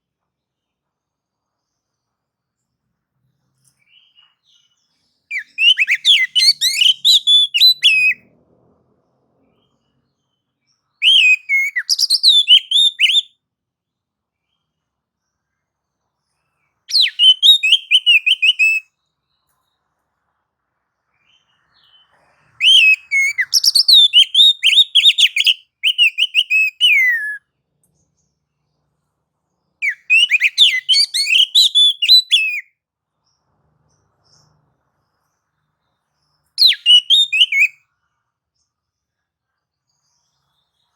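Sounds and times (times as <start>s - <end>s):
magpie-robin whistled song: 3.8s - 8.2s, 9.6s - 13.4s, 16.9s - 19.4s, 21.2s - 27.6s, 29.6s - 32.7s, 34.2s - 37.9s.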